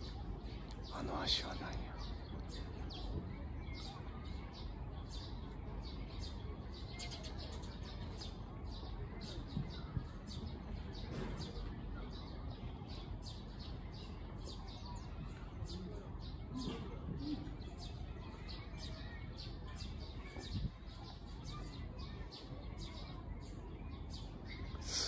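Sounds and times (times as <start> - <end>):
low background noise: 0.0 - 25.0
small birds chirping: 0.0 - 25.0.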